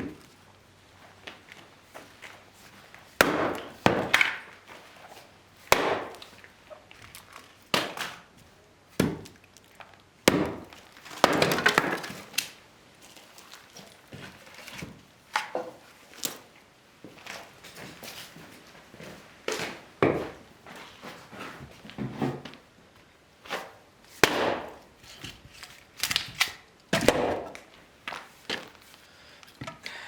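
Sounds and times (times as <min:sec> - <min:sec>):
axe chopping firewood: 0:03.2 - 0:04.6, 0:05.6 - 0:06.4, 0:07.7 - 0:08.2, 0:09.0 - 0:09.4, 0:10.2 - 0:12.6, 0:23.6 - 0:24.9, 0:26.0 - 0:27.7.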